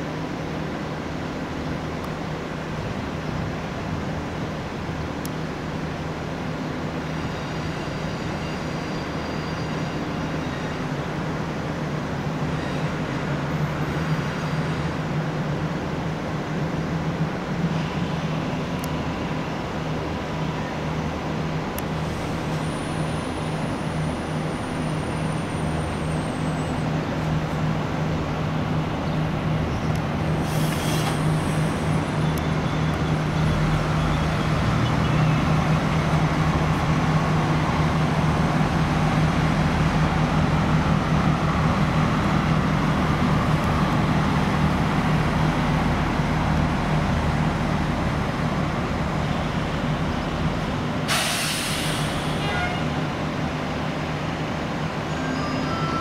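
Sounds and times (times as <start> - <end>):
short hissing bursts: 51.1 - 52.4.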